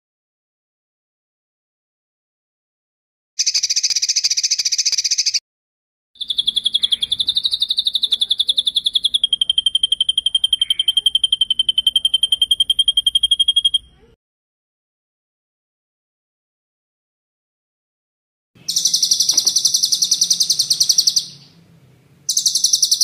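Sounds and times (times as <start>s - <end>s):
songbird trills: 3.4s - 5.4s, 6.2s - 14.1s, 18.6s - 21.7s, 22.3s - 23.0s.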